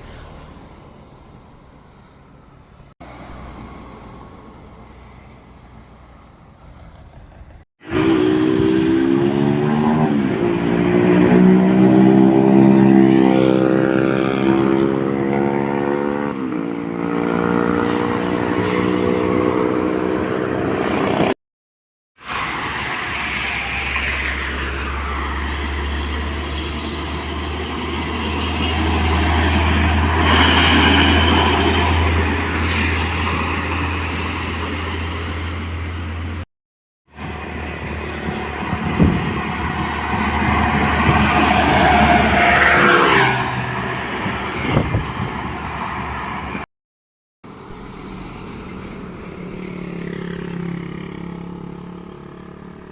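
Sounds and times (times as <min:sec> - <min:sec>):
trucks driving past: 0:00.0 - 0:21.4, 0:22.2 - 0:36.5, 0:37.1 - 0:46.7, 0:47.4 - 0:52.9
tyre and road noise: 0:00.0 - 0:21.4, 0:22.2 - 0:36.4, 0:37.1 - 0:46.6, 0:47.4 - 0:52.9.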